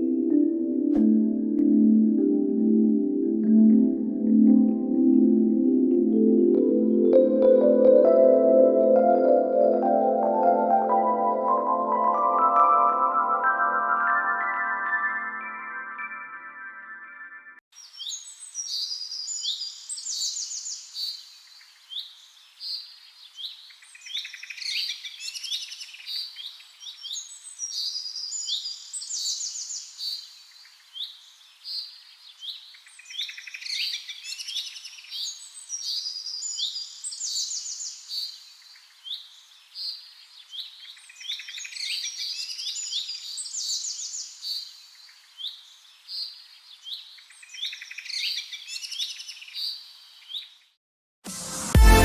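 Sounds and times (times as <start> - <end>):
songbirds chirping and trilling: 17.8 - 50.8.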